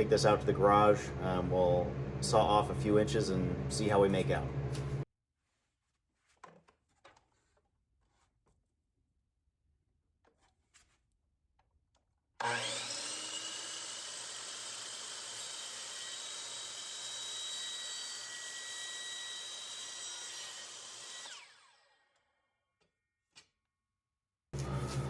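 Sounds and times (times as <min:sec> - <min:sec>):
electric saw cutting pipe: 0:12.4 - 0:22.4.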